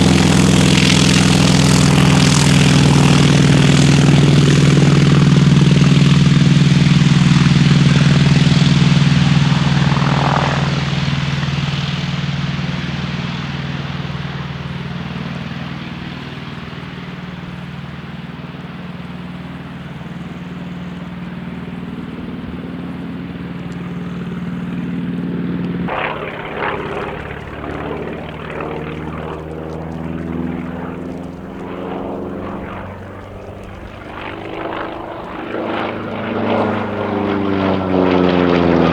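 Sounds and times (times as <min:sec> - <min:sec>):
propeller plane droning in flight: 0:00.0 - 0:38.9.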